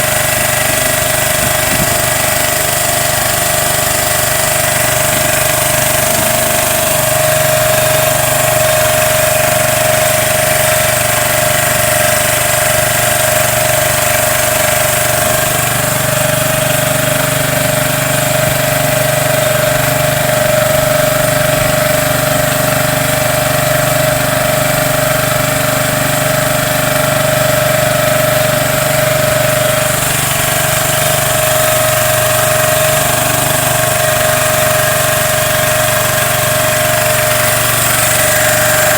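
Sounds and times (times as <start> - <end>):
small boat engine droning: 0.0 - 38.9.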